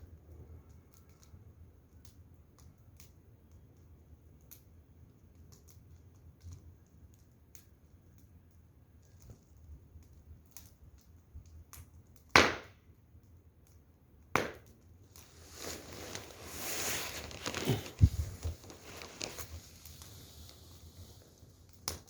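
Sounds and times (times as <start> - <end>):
wood fire crackling: 0.0 - 22.0
sharp pops: 12.3 - 12.8, 14.4 - 14.8
rustling and knocking: 15.5 - 19.6.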